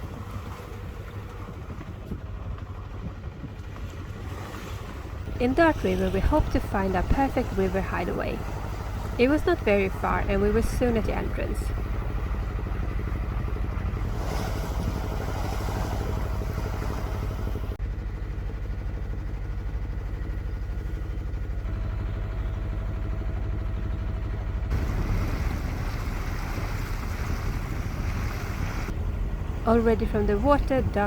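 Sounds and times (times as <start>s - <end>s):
water noise: 0.0s - 17.8s, 24.7s - 31.0s
boat engine running: 0.0s - 31.0s
wind: 0.0s - 31.0s.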